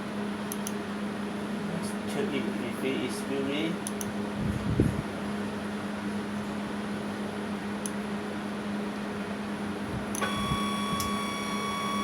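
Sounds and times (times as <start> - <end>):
motor humming and whining: 9.9 - 12.0.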